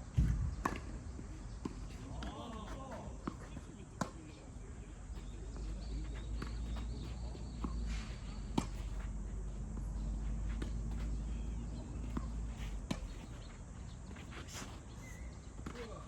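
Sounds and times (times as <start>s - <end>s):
tennis ball bouncing on court: 0.2s - 1.0s, 1.6s - 4.2s, 5.1s - 7.8s, 8.5s - 9.0s, 9.8s - 13.5s
tennis ball hit by racket: 12.0s - 13.3s.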